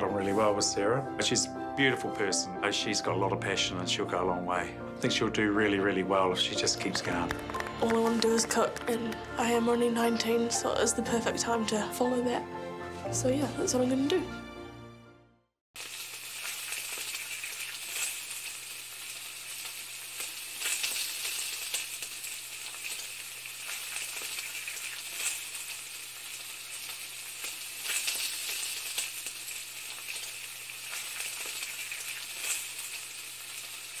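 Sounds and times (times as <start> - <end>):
food sizzling in a pan: 15.8 - 34.0
sharp crackles: 15.8 - 34.0.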